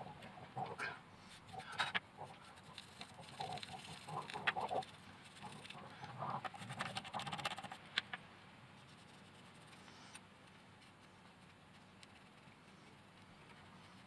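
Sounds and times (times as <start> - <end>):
scrubbing and scraping by hand: 0.0 - 8.2.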